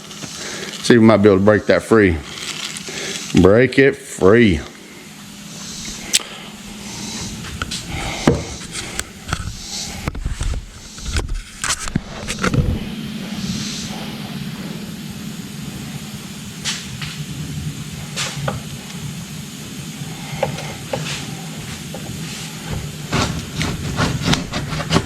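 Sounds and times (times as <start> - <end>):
sharp knocks and clanks: 8.2 - 8.6, 21.9 - 25.0
low engine-like hum: 12.4 - 22.7.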